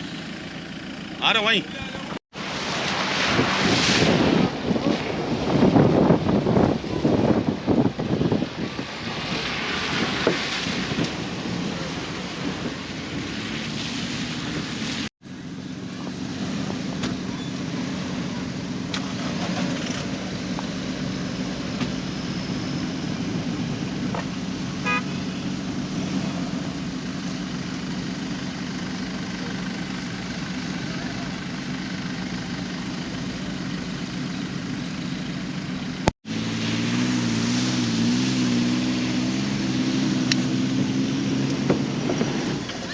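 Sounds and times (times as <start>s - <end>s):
vehicle engine hum: 0.0s - 42.9s
noisy rushing: 1.2s - 15.1s
short beep: 24.8s - 25.2s.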